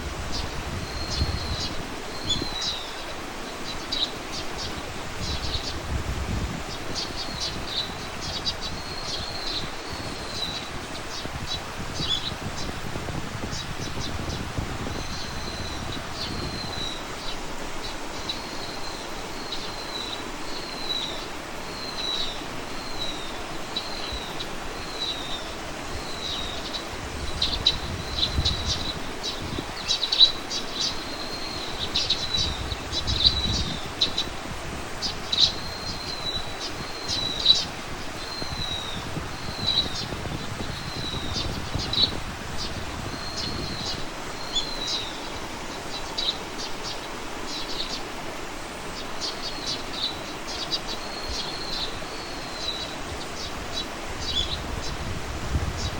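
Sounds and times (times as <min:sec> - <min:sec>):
steady outdoor hiss: 0:00.0 - 0:55.9.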